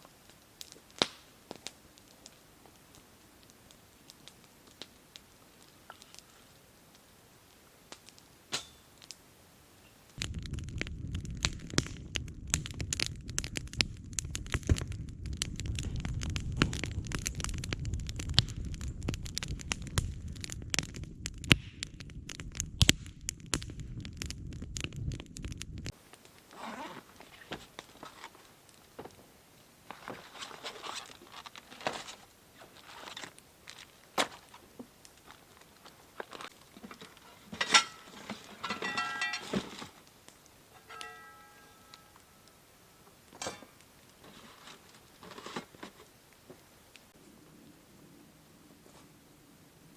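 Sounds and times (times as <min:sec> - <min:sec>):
campfire crackling and popping: 0:00.0 - 0:49.9
low rumble of flames: 0:00.0 - 0:49.9.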